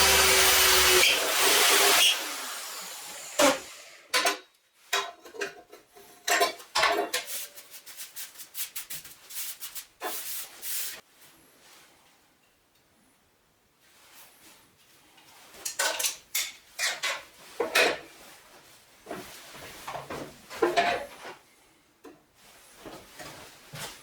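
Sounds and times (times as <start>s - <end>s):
angle grinder running: 0.0s - 4.1s.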